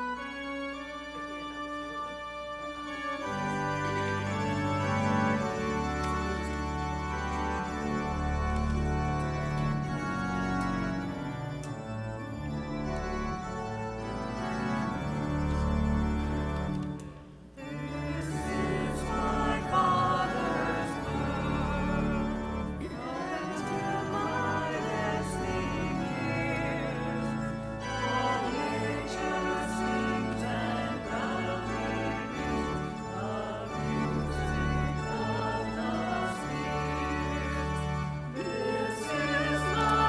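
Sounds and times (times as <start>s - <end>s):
organ playing a hymn: 0.0s - 40.0s
voices singing: 17.6s - 40.0s.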